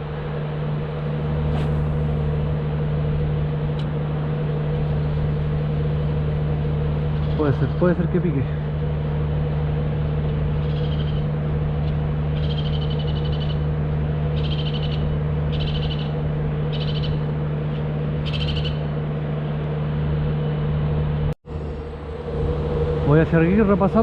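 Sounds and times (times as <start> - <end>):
low hum: 0.0 - 24.0
bird trilled call: 10.6 - 13.7, 14.3 - 17.3, 18.2 - 18.9
rushing background: 21.5 - 24.0.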